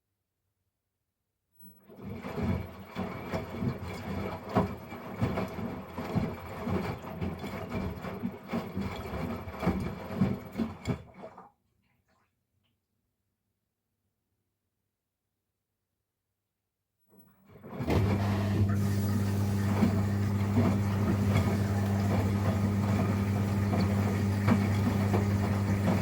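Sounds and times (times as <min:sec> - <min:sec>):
washing machine drum turning: 0:17.8 - 0:26.0.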